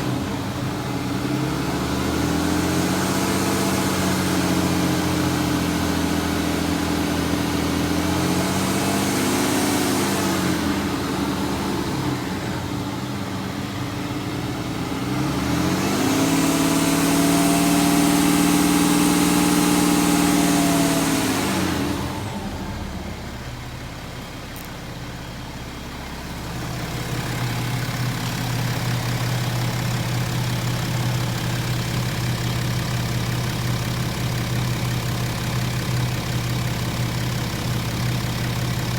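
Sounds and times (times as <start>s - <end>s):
diesel engine revving: 0.0s - 23.8s.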